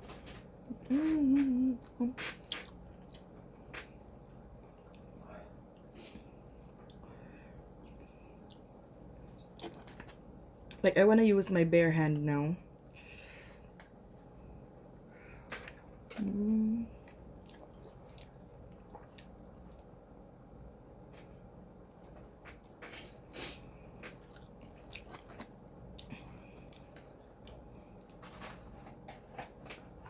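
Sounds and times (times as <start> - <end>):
person humming: 0.7 - 2.3, 16.2 - 17.0
wet chewing: 7.8 - 10.2, 17.0 - 20.1, 23.3 - 30.0.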